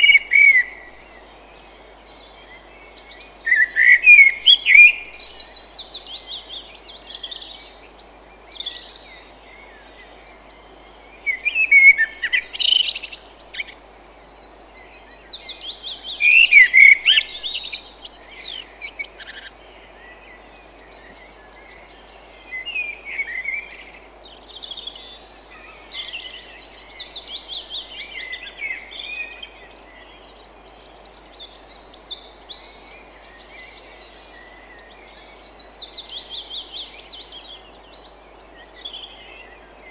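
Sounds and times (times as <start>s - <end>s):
low forest ambience hiss: 0.0s - 39.9s
birds chirping and singing: 2.4s - 6.3s, 15.3s - 19.6s.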